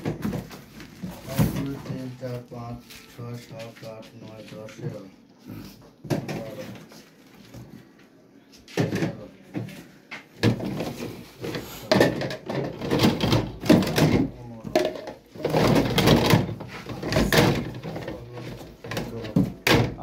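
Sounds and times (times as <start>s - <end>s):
plastic pipe fittings clattering: 10.4s - 20.0s.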